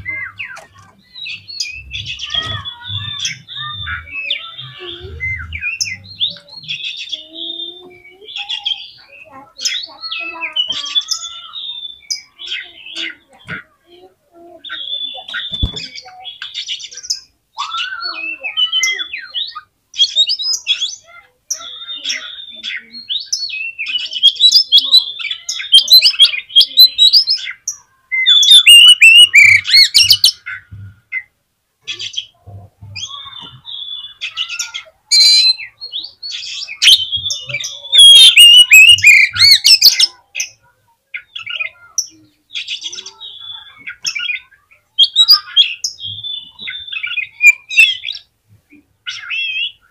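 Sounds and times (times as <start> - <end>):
songbird singing: 0.0 - 49.9.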